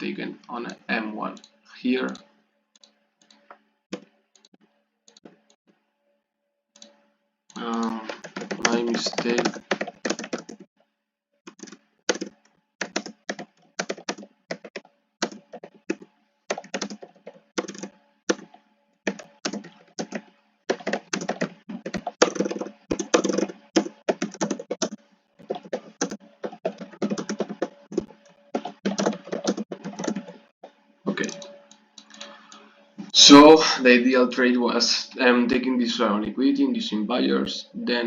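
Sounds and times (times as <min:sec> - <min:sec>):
keyboard typing clicks: 0:06.8 - 0:10.7, 0:11.5 - 0:30.4, 0:31.2 - 0:32.3.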